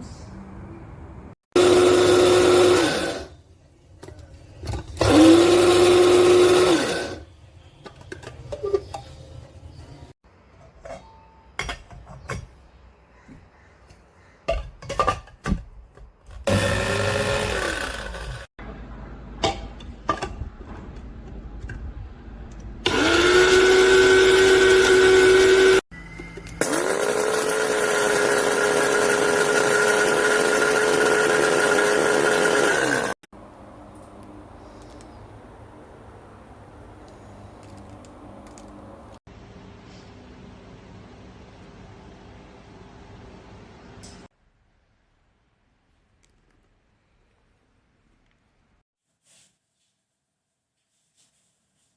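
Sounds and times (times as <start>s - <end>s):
coffee grinder motor running: 1.6s - 3.3s, 5.0s - 7.2s, 16.5s - 18.5s, 22.8s - 25.8s, 26.6s - 33.2s.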